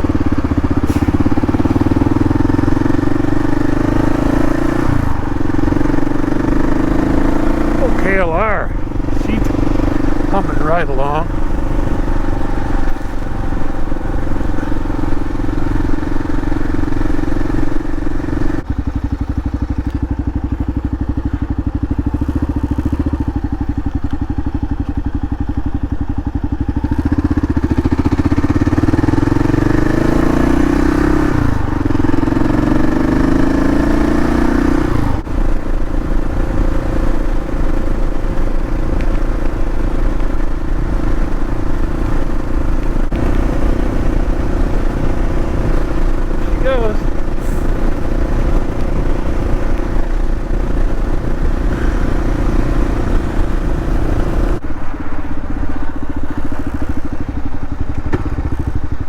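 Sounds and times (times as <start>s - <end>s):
motorcycle engine running: 0.0s - 59.0s
wind noise: 34.9s - 59.0s.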